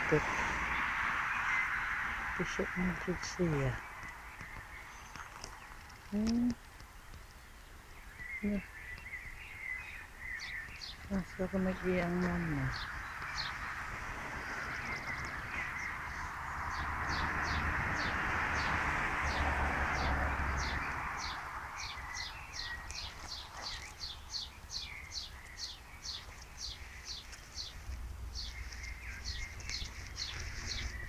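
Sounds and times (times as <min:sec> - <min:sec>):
steady rushing noise: 0:00.0 - 0:04.8, 0:12.7 - 0:23.4
small bird chirping: 0:00.0 - 0:31.0.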